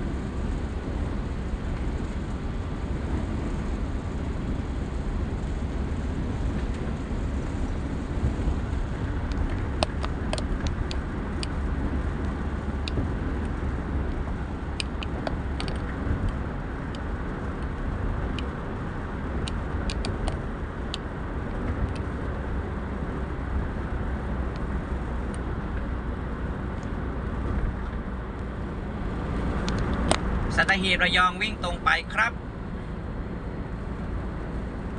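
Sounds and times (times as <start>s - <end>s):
car driving on highway: 0.0s - 34.9s
small clicks: 19.4s - 21.0s.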